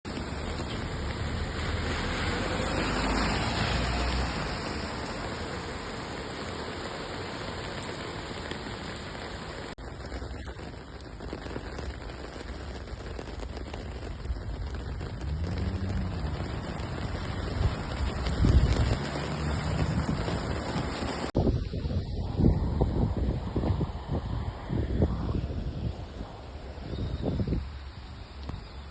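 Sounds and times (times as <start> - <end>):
rain falling on street: 0.0 - 28.9
low rumble: 14.8 - 28.1.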